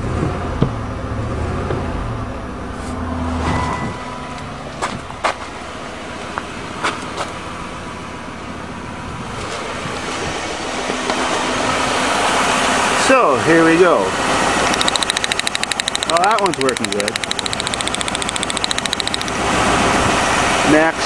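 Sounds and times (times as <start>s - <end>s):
sharp clicks: 14.7s - 19.4s.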